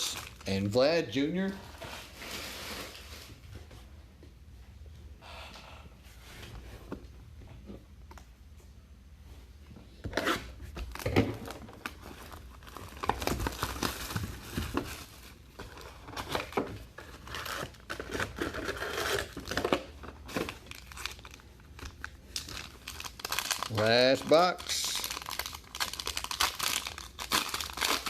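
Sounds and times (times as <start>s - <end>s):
plastic wrappers tearing and crinkling: 0.0s - 0.8s, 10.8s - 28.0s.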